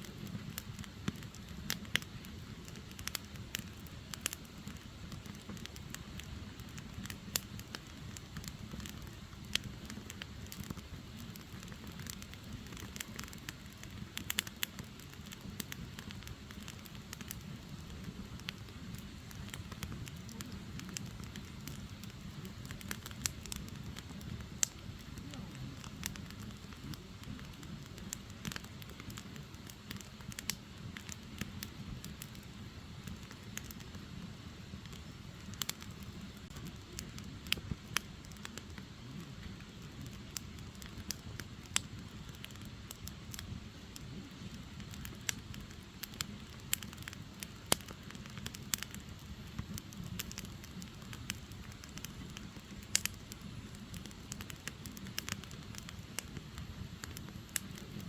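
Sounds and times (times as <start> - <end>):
logs crackling and popping: 0.0 - 58.0
low rumble of flames: 0.0 - 58.0.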